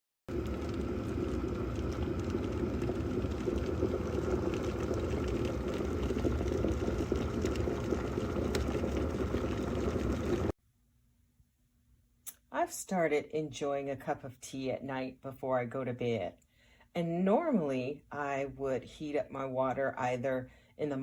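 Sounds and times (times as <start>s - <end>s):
water boiling in kettle: 0.3s - 10.6s.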